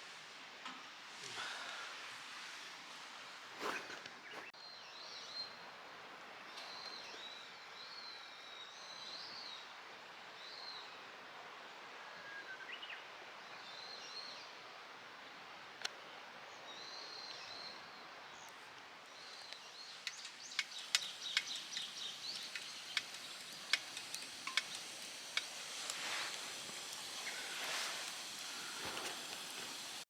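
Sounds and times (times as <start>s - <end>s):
birds calling faintly: 3.6s - 5.7s, 15.8s - 30.0s
sharp clicks and cracks: 19.5s - 27.4s.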